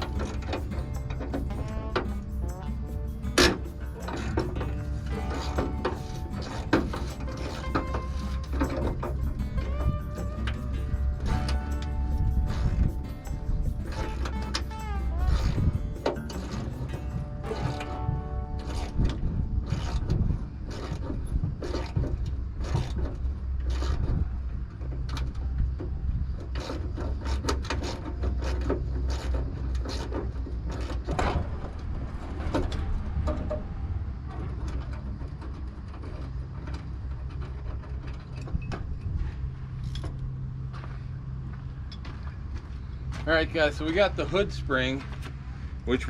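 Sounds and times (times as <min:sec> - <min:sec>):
hand tools clanking on metal: 0:00.0 - 0:22.1
steady low hum: 0:00.0 - 0:46.0.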